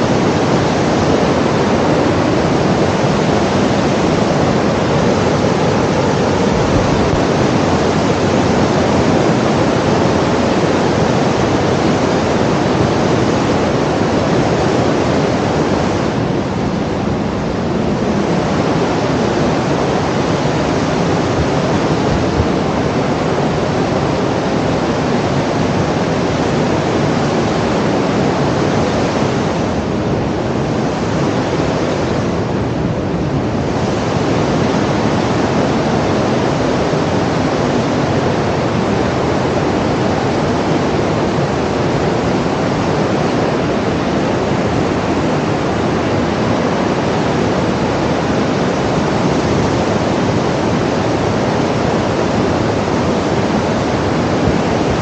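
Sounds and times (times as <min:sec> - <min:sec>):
loud rushing noise: 0:00.0 - 0:25.0.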